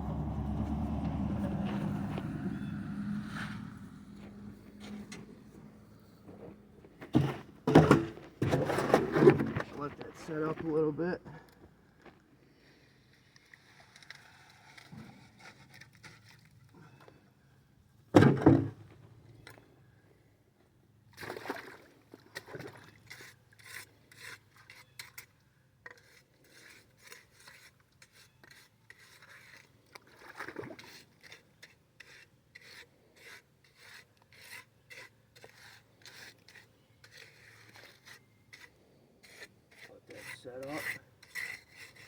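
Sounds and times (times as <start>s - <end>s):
trowel scraping wet concrete: 0.0s - 10.7s, 12.9s - 17.0s, 22.4s - 42.0s.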